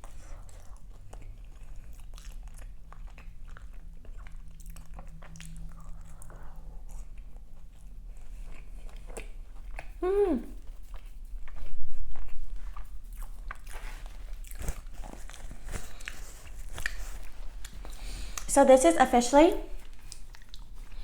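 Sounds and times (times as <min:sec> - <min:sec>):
person chewing crunchy pastry: 0:00.0 - 0:18.5, 0:19.7 - 0:21.0
person humming mm: 0:10.0 - 0:10.6
wet mouth clicks: 0:16.0 - 0:18.5, 0:19.8 - 0:20.9.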